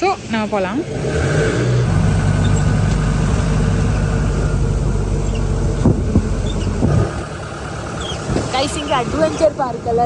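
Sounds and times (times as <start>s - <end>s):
vehicle engine and road noise: 0.0s - 10.0s.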